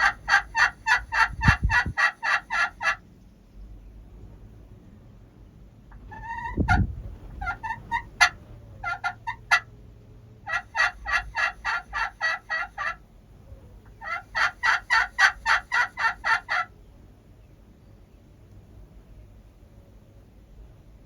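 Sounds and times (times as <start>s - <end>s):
wild turkey yelping: 0.0s - 3.0s, 6.0s - 9.7s, 10.5s - 13.0s, 13.9s - 16.7s.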